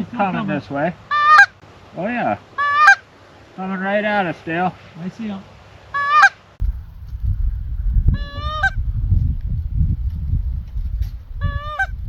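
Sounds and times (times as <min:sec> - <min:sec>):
goose honking: 0:01.1 - 0:01.6, 0:02.6 - 0:03.0, 0:06.0 - 0:06.4, 0:08.2 - 0:08.8, 0:11.5 - 0:11.9
low rumble: 0:06.6 - 0:12.0.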